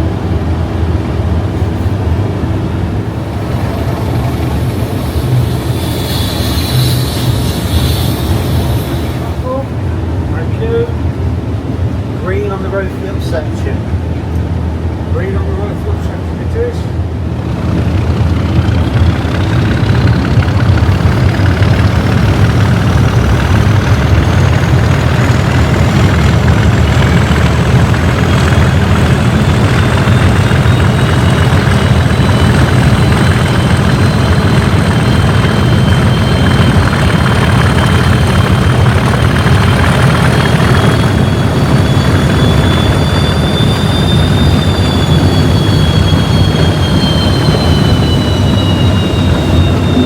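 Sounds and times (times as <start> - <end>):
second whine climbing: 0.0 - 12.0, 16.8 - 50.0
diesel locomotive engine running hard: 0.0 - 50.0
high turbocharger whistle: 3.1 - 9.6, 18.4 - 50.0.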